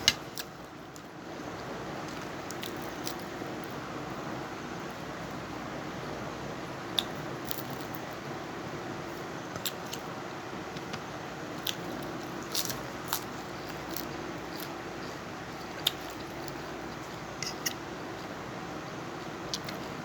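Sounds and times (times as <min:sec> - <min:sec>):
person chewing food: 0:11.6 - 0:18.4.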